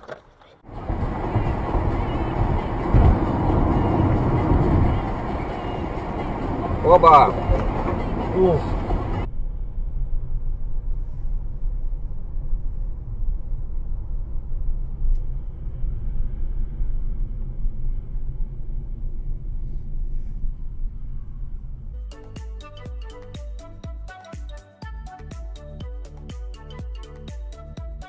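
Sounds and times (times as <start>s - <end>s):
moving vehicle rumble: 0.0s - 23.9s.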